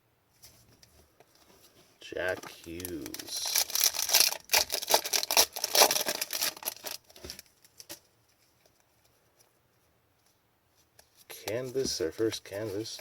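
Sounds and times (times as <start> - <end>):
wrapper crinkling: 2.5 - 8.0.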